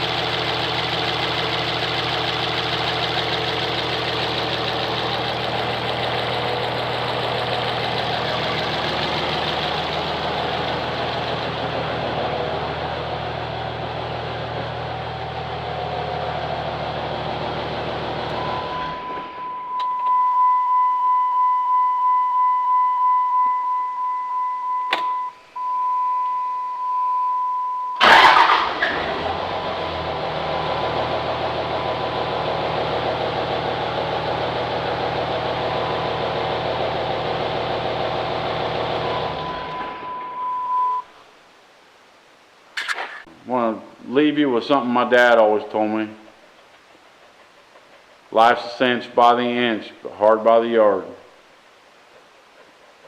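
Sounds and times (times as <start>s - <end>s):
diesel engine idling: 0.0s - 19.8s, 28.0s - 40.6s
steady high-pitched beep: 39.6s - 41.1s.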